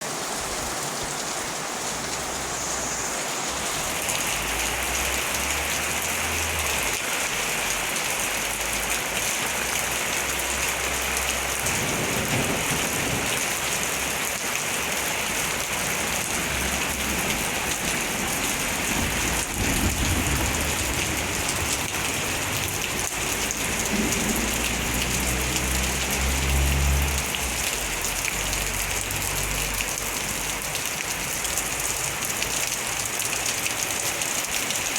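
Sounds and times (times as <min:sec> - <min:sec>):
heavy rain falling: 0:00.0 - 0:34.9
thunder rumbling: 0:11.6 - 0:14.1, 0:16.1 - 0:25.0.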